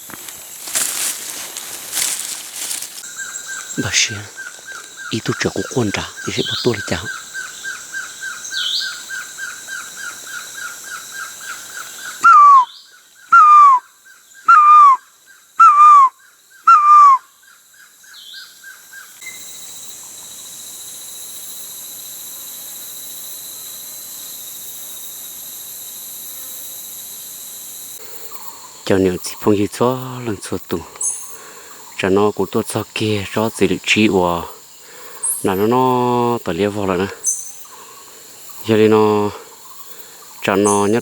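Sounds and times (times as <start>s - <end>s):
high insect drone: 0.0s - 41.0s
rhythmic insect chirping: 0.0s - 41.0s
bird whistling downward: 12.2s - 13.8s, 14.5s - 15.0s, 15.6s - 16.1s, 16.7s - 17.2s.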